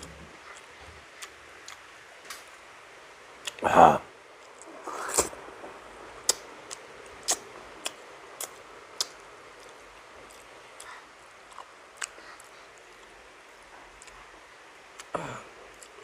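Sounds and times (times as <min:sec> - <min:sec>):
eating clicks and smacks: 0:06.3 - 0:13.1, 0:13.9 - 0:14.2.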